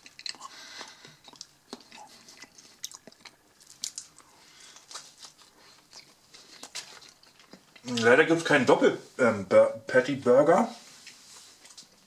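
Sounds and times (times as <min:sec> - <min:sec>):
person chewing close up: 0:00.0 - 0:08.1
small crackles: 0:00.0 - 0:08.6, 0:11.0 - 0:12.0.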